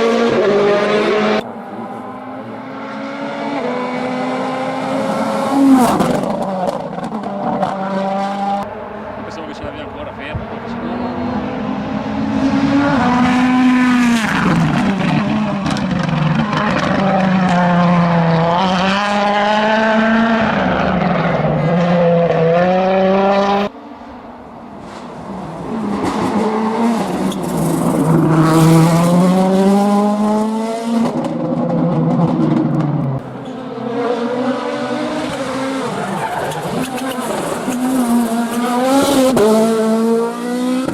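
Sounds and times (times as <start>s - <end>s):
rally car engines revving: 0.0s - 40.9s.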